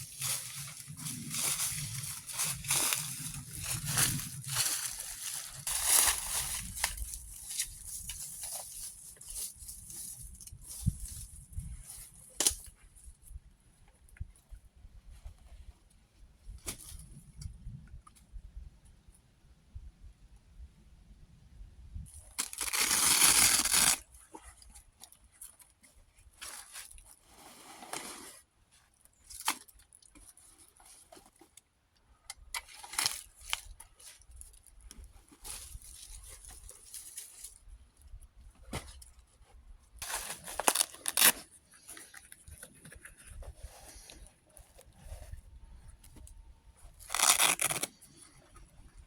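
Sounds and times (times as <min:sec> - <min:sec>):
crinkling rustles and clicks: 0:00.0 - 0:18.3, 0:22.1 - 0:49.0
paper tearing: 0:22.4 - 0:24.0, 0:40.4 - 0:41.4, 0:47.0 - 0:48.0.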